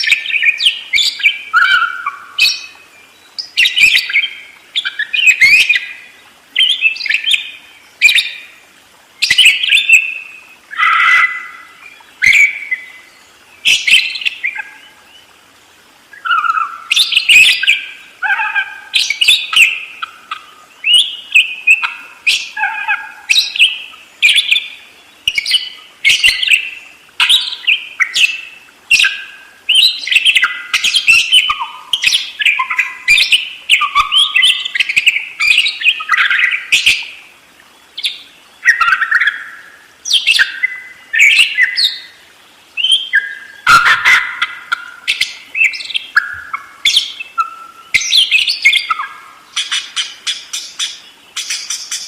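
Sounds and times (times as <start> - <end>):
budgerigars chattering and warbling: 0.0 - 2.8, 3.4 - 6.0, 10.7 - 12.9, 16.1 - 24.7, 25.3 - 37.1, 38.0 - 42.1, 42.8 - 52.0.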